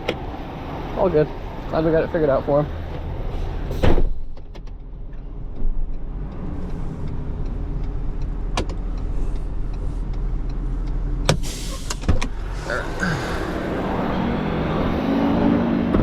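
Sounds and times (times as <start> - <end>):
truck engine running: 7.0 - 16.0.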